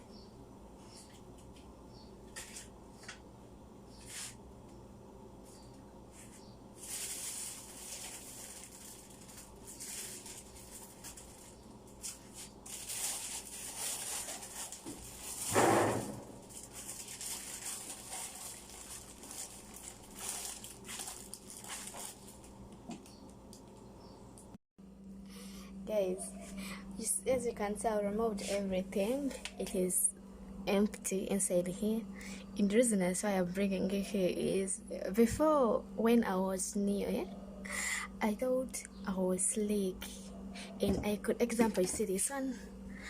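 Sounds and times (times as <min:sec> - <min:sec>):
refrigerator hum: 0:00.0 - 0:43.0
food packages being handled: 0:06.2 - 0:23.8.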